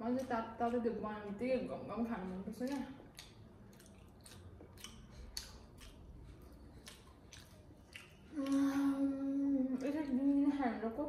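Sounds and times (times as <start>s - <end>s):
wet chewing and lip smacks: 2.2s - 8.6s
voice humming mmm: 8.3s - 9.8s.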